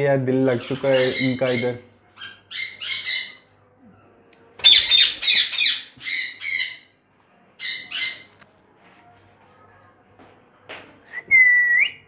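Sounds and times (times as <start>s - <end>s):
parrots squawking: 0.5s - 3.5s, 4.6s - 6.9s, 7.6s - 8.3s.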